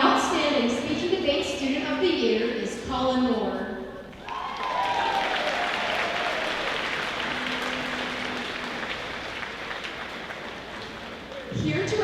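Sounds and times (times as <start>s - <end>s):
audience applauding: 4.1s - 11.6s
person cheering: 4.2s - 9.2s.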